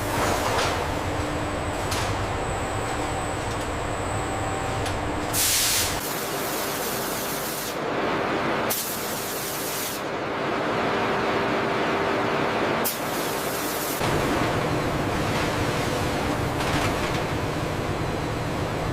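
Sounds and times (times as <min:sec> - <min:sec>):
factory machinery noise: 0:00.0 - 0:18.9
compressed air hiss: 0:05.3 - 0:06.2.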